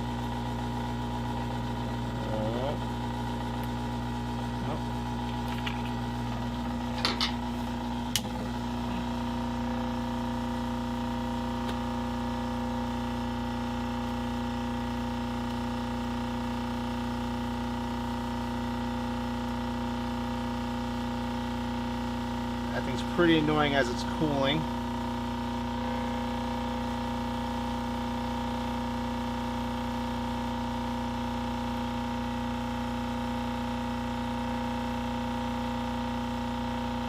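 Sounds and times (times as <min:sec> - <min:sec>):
heat gun fan hum: 0:00.0 - 0:37.0.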